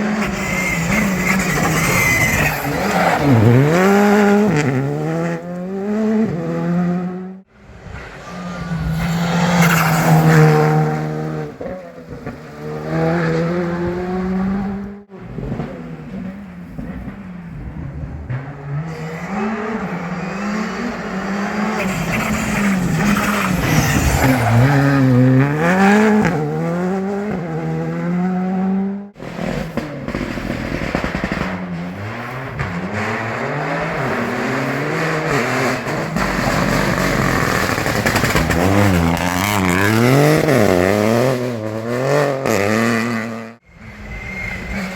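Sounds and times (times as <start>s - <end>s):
tyre squeal: 0.0s - 4.0s, 18.9s - 26.0s, 43.7s - 44.9s
rally car engines revving: 0.0s - 44.9s.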